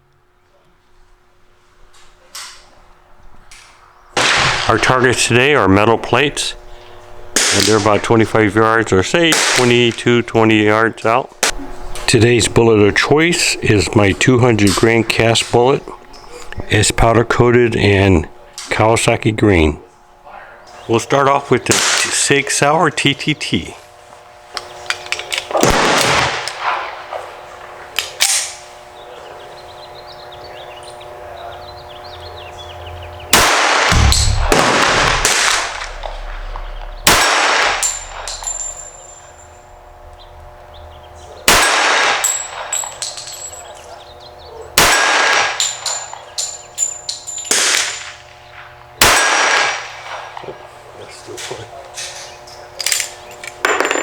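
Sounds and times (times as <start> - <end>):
pistol shots: 4.2 - 4.8, 25.5 - 26.9, 33.3 - 39.2, 41.5 - 43.0, 44.8 - 45.8, 49.0 - 50.0
metallic clang of steel targets: 33.9 - 39.8.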